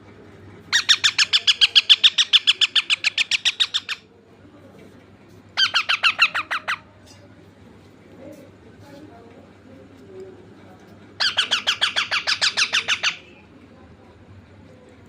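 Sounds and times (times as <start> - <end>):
parrot calling shrill notes: 5.6 - 6.8.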